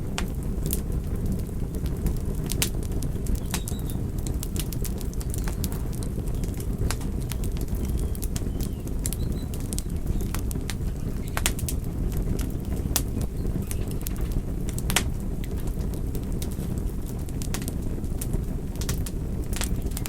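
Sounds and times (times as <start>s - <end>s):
fire crackling and popping: 0.0s - 20.0s
fire flames rushing: 0.0s - 20.0s.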